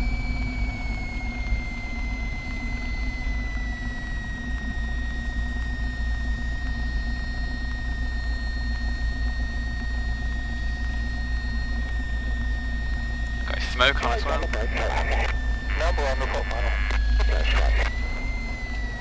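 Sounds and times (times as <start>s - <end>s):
aircraft engine idling: 0.0s - 19.0s
thin high whine: 12.9s - 18.7s.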